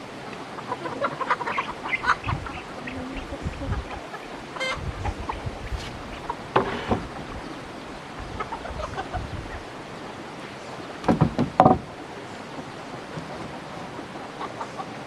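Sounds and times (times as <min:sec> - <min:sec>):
steady hiss: 0:00.0 - 0:15.0
poultry calling: 0:00.5 - 0:10.9.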